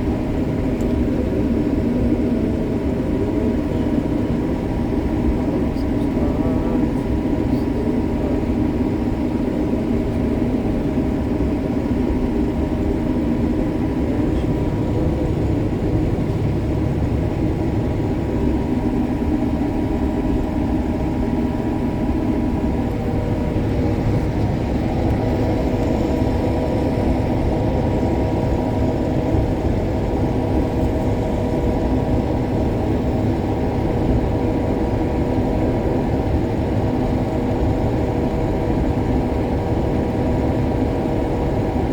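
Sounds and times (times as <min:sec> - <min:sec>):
combine harvester engine drone: 0:00.0 - 0:41.9.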